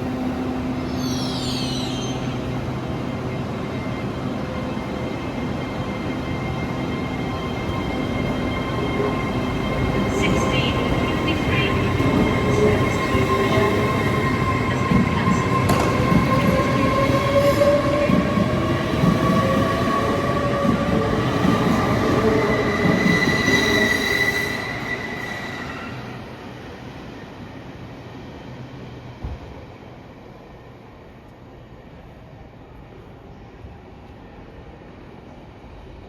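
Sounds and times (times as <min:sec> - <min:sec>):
train wheels squealing: 0:00.8 - 0:09.8, 0:20.4 - 0:26.3
train rumble: 0:02.2 - 0:28.1.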